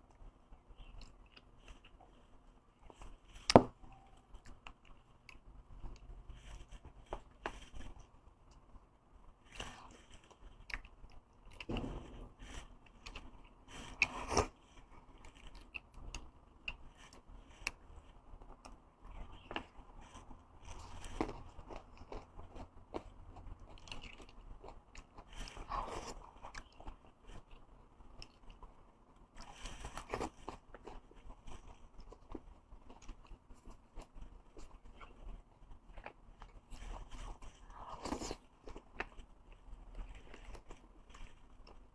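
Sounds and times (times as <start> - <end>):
chewing and biting: 18.5 - 28.7, 29.4 - 41.8.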